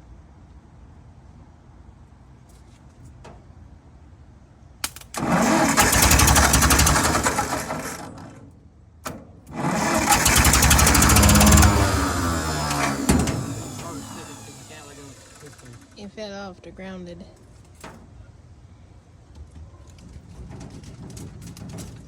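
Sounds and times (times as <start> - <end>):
tractor engine cranking: 4.8 - 16.3.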